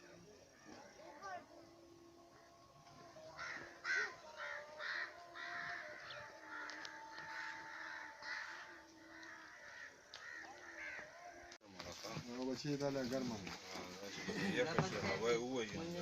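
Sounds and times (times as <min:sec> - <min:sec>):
crows cawing: 0:03.1 - 0:11.6.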